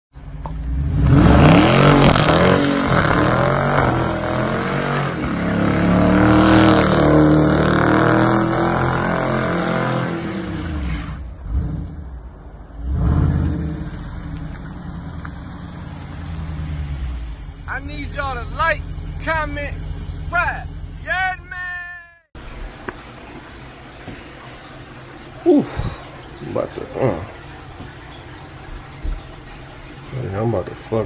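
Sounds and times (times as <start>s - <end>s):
car engine revving: 0.2s - 21.1s.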